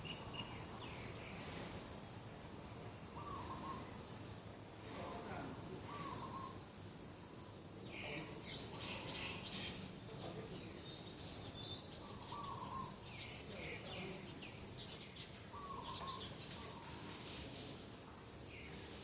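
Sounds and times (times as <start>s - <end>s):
birds chirping: 3.1s - 3.9s, 8.0s - 17.0s.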